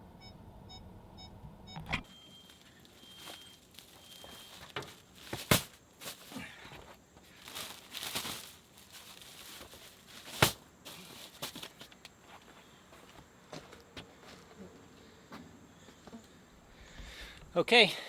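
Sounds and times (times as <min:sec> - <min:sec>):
handling knocks: 0:02.0 - 0:11.9
rustling: 0:02.0 - 0:14.5.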